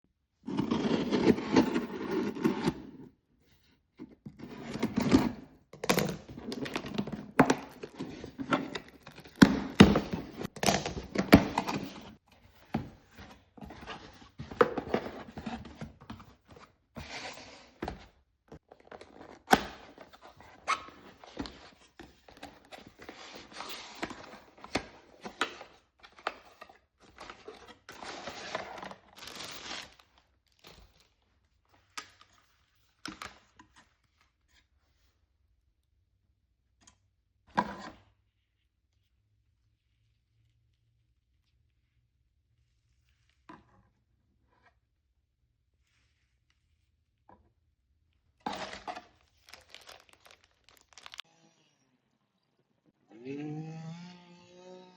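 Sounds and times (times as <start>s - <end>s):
packaging rustling: 27.1s - 31.1s, 48.5s - 51.2s.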